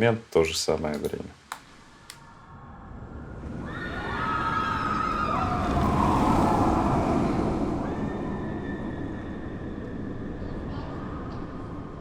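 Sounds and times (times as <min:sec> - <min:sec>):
roller coaster rumble: 0:02.6 - 0:12.0
riders screaming: 0:03.6 - 0:09.6.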